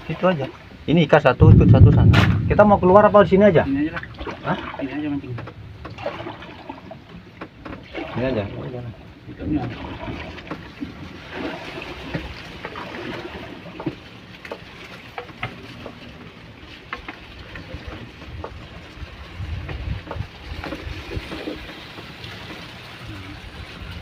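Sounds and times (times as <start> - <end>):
water noise: 0.0 - 24.0
wind on microphone: 1.1 - 7.1, 17.7 - 21.8
knocks against boat: 4.0 - 7.9, 13.7 - 16.0, 19.6 - 22.6.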